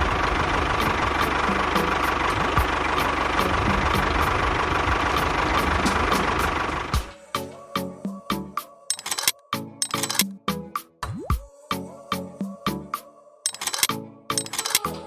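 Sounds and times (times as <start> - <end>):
small engine ticking and humming: 0.0 - 7.1, 13.5 - 14.9.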